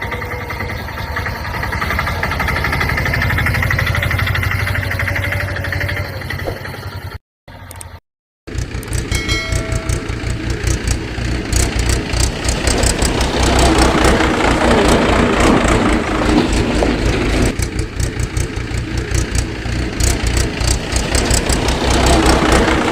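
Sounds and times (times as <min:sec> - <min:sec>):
engine idling with rattle: 0:00.0 - 0:22.9.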